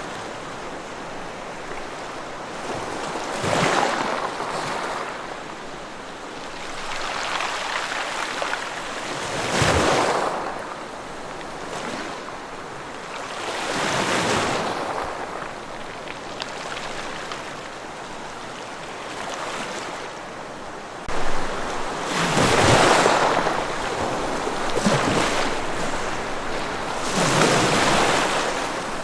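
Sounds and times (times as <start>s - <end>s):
ocean waves crashing on shore: 6.2s - 29.0s.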